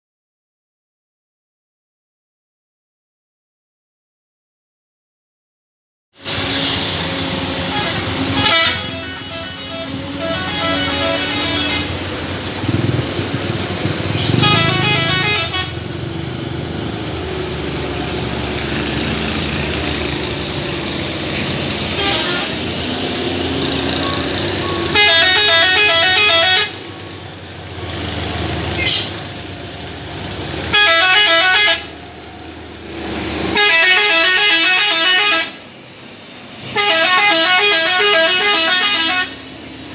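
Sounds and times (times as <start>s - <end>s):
warbling truck horns: 6.2s - 16.3s, 18.6s - 29.3s, 30.3s - 32.0s, 33.2s - 35.7s, 36.7s - 39.7s
traffic and engines: 6.2s - 39.9s.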